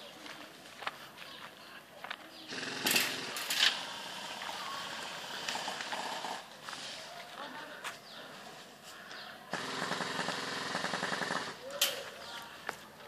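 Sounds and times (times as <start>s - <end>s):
airsoft guns firing: 2.5s - 4.6s, 9.5s - 11.7s.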